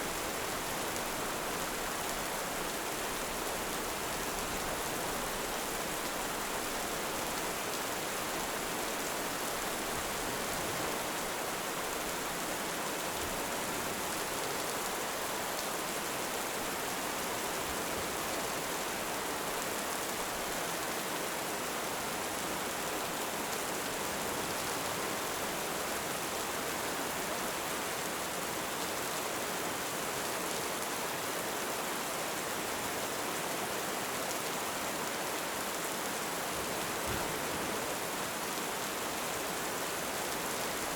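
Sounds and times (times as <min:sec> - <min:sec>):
heavy rain falling: 0:33.4 - 0:40.9.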